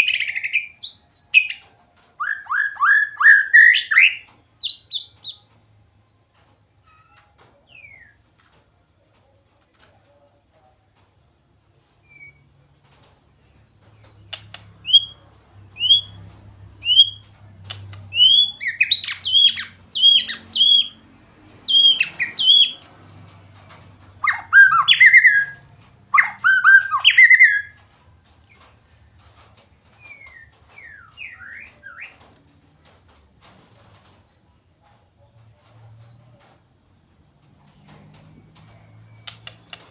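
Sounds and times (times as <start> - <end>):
songbird whistling song: 0.0 - 1.6, 2.2 - 5.5, 12.0 - 12.5, 13.8 - 16.2, 16.8 - 17.3, 17.9 - 21.0, 21.6 - 29.2, 30.0 - 32.3.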